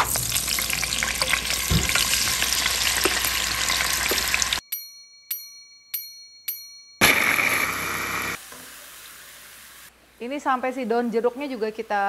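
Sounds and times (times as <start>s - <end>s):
tofu sizzling in hot oil: 0.0s - 4.6s
bell-like dings: 4.1s - 7.8s.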